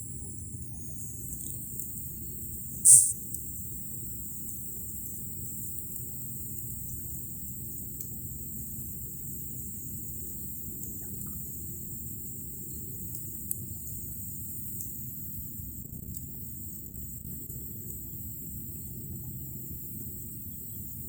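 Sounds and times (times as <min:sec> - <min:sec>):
crickets chirring: 0:00.0 - 0:01.6, 0:02.8 - 0:03.2
sharp high-pitched burst: 0:02.9 - 0:03.2.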